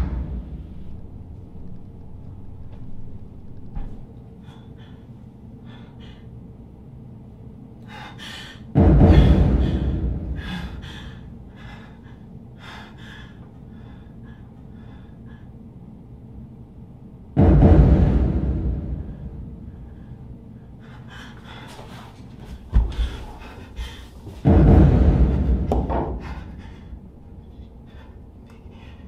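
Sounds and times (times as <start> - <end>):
loud deep boom: 0.0 - 1.2, 8.8 - 11.0, 17.4 - 20.1, 24.4 - 26.8
person breathing hard and gasping: 4.4 - 6.5, 7.8 - 15.7, 19.0 - 24.4, 25.6 - 29.0.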